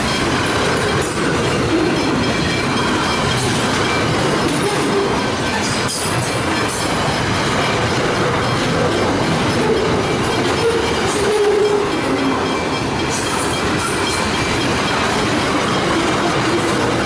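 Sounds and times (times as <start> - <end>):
train passing over rails: 0.0 - 17.0.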